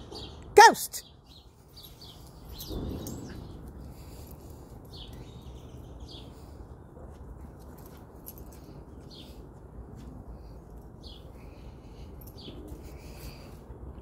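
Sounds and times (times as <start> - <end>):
small birds chirping: 0.0 - 13.9
outdoor background noise: 0.0 - 14.0.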